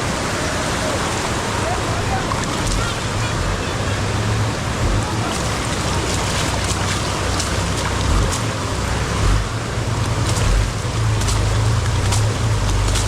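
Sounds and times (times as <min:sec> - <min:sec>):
wind rush: 0:00.0 - 0:11.6
motorcycle engine hum: 0:00.0 - 0:13.0
rain spatters: 0:00.0 - 0:13.0.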